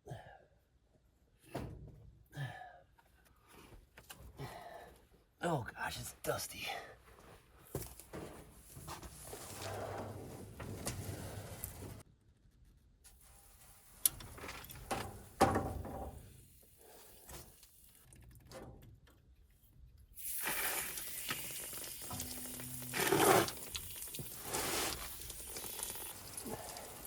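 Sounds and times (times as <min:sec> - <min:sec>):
knocks and scrapes: 0:08.0 - 0:12.0.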